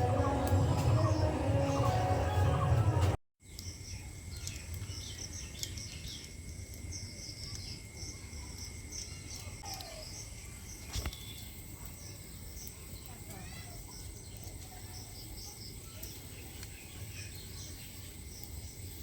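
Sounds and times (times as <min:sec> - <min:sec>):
low background rumble: 0:00.0 - 0:03.2
small bird chirping: 0:00.0 - 0:19.0.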